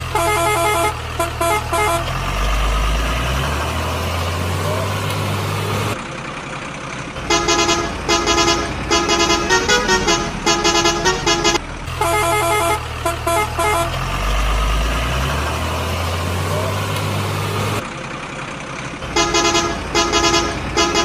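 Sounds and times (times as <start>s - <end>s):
musical vehicle horn tooting: 0.0s - 2.1s, 7.3s - 14.0s, 19.2s - 21.0s
low engine hum: 0.0s - 21.0s.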